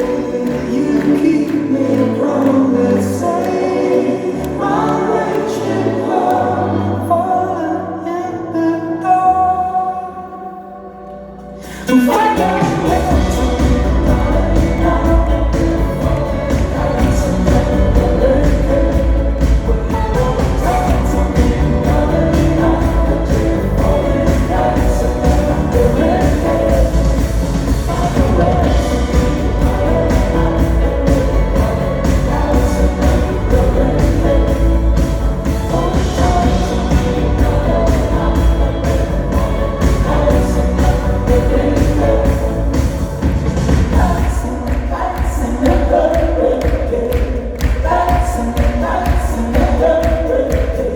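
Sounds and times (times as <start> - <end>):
pop-rock band playing live: 0.0 - 7.1, 11.4 - 50.9
person singing: 0.0 - 50.9
drum beat: 12.4 - 50.9.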